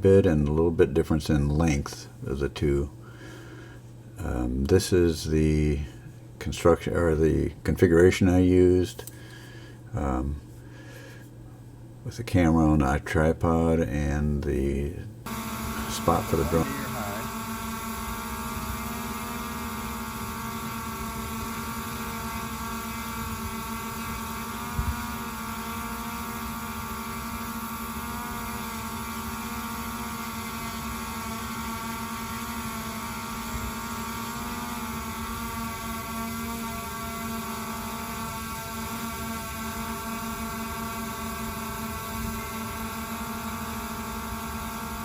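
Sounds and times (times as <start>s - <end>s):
drone propellers buzzing: 15.3s - 45.0s.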